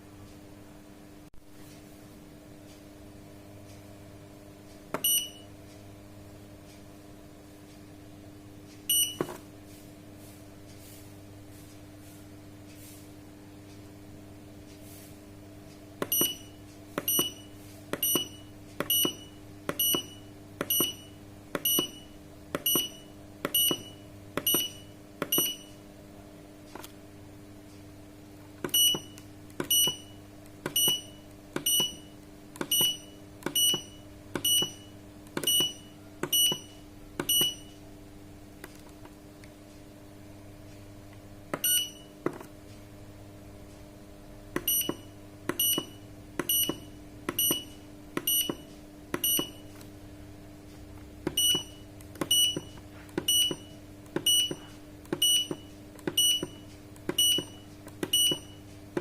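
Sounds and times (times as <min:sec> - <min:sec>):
steady low hum: 0:00.0 - 0:59.0
short high key beeps: 0:05.0 - 0:05.5, 0:08.9 - 0:09.3, 0:16.0 - 0:25.8, 0:28.7 - 0:37.8, 0:41.6 - 0:42.1, 0:44.6 - 0:48.6, 0:49.2 - 0:49.7, 0:51.3 - 0:54.6, 0:55.2 - 0:58.6.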